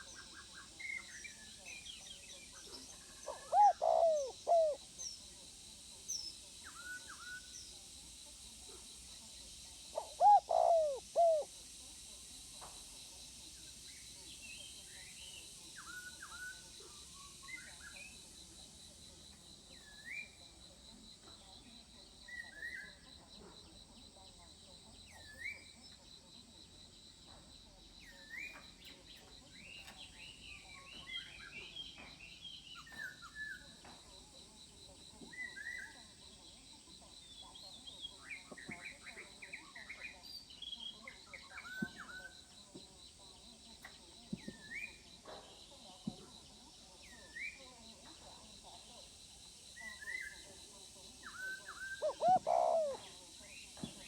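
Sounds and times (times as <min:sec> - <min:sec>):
birds chirping: 0:00.0 - 0:05.2, 0:10.0 - 0:11.4, 0:51.3 - 0:53.1
small birds chirping: 0:00.0 - 0:11.5, 0:27.7 - 0:34.4, 0:45.7 - 0:54.0
high insect trill: 0:00.0 - 0:31.5, 0:46.3 - 0:54.0.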